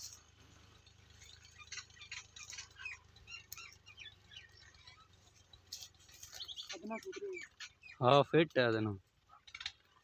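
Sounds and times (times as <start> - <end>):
faint bird chirps: 1.0 - 8.4.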